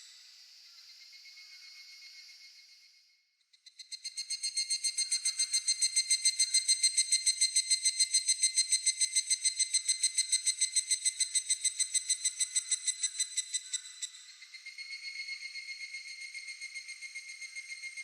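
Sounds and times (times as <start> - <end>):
cicada calling in ringing pulses: 3.8 - 18.0.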